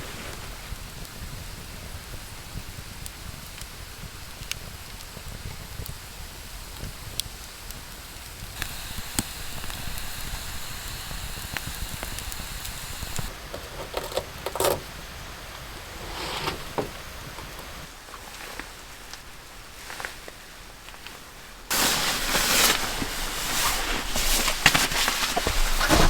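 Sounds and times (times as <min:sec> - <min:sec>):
campfire crackling and popping: 0:00.4 - 0:13.5.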